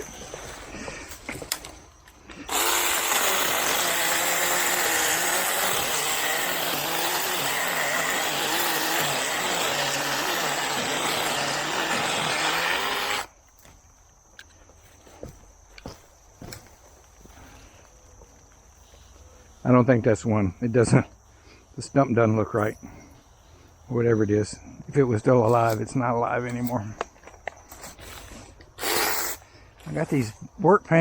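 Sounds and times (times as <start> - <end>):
mini chainsaw cutting wood: 2.3 - 13.4, 28.8 - 29.4.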